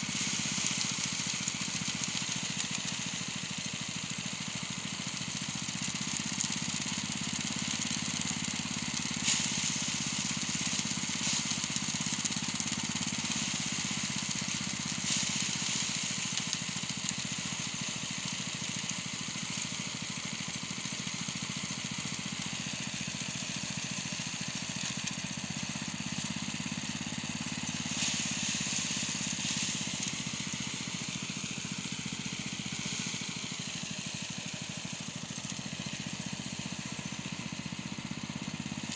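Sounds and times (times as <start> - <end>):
small engine machine running: 0.0 - 38.9
rushing hiss: 24.6 - 38.9.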